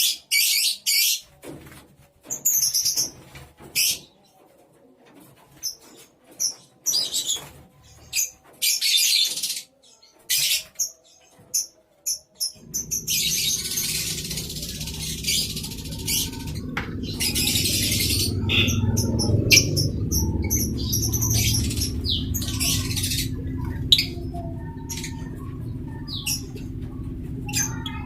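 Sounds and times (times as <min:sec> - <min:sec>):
birds chattering and screeching: 0:00.0 - 0:28.0
low rumble: 0:12.6 - 0:28.0.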